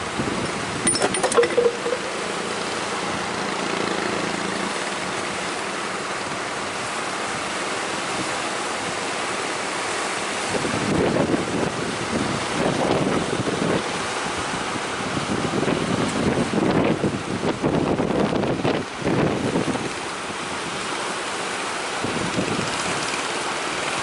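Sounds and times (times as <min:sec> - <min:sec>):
sea surf: 0:00.0 - 0:24.0
strong wind on microphone: 0:10.5 - 0:20.0, 0:22.0 - 0:23.1.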